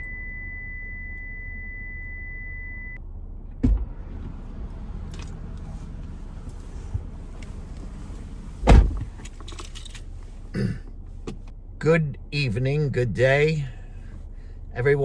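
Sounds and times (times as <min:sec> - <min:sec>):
low steady rumble: 0:00.0 - 0:15.0
loud thump: 0:03.6 - 0:04.4, 0:08.6 - 0:09.2.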